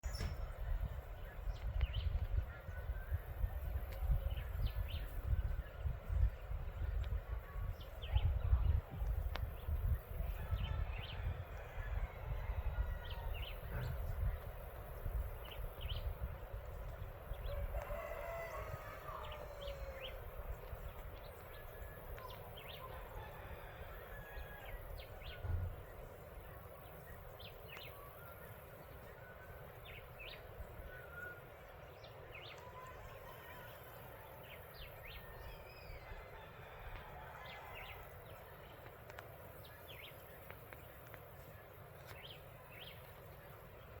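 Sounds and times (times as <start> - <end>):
rooster crowing: 10.8 - 13.7, 17.4 - 20.3, 23.0 - 24.9, 32.8 - 34.4, 35.5 - 38.1.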